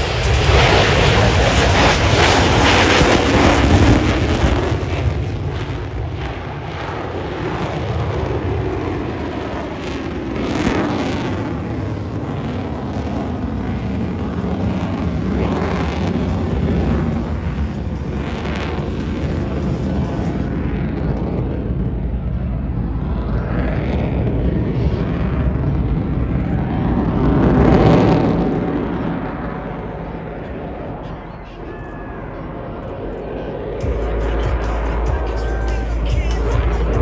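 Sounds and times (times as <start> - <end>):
jet engine roar on takeoff: 0.0 - 37.0.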